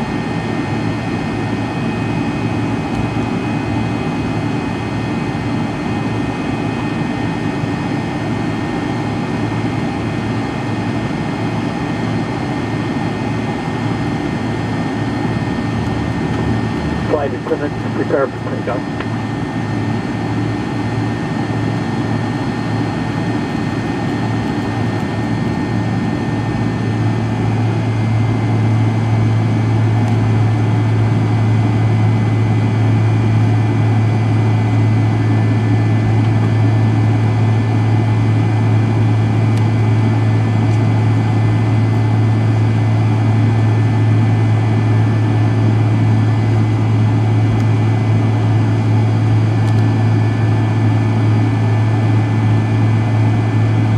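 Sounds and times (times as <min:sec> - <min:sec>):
jet engines droning: 0:00.0 - 0:53.9.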